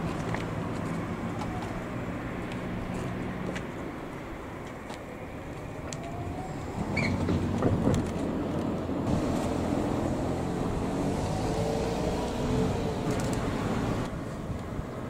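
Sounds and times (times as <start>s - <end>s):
wheel squeak on rails: 6.4s - 8.0s.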